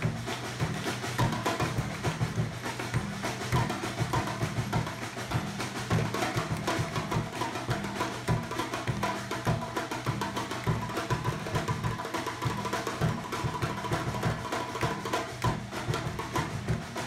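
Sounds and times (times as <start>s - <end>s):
drum ensemble playing: 0.0s - 17.0s.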